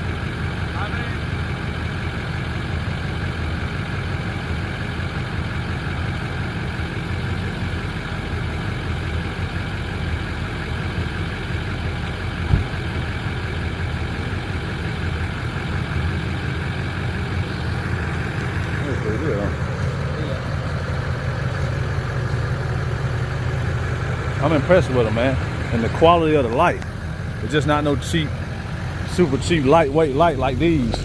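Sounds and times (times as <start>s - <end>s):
pickup engine idling: 0.0s - 31.0s
brief knock: 12.5s - 12.7s.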